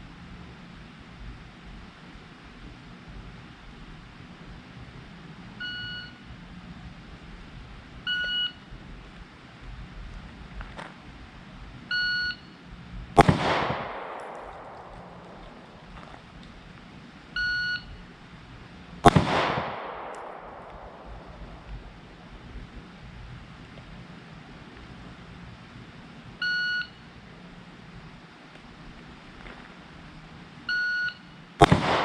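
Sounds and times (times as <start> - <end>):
shot timer beeps: 8.1 - 8.6, 11.9 - 12.6, 17.4 - 18.0
pistol shot echoing: 13.2 - 16.6, 19.0 - 22.5, 31.6 - 32.0.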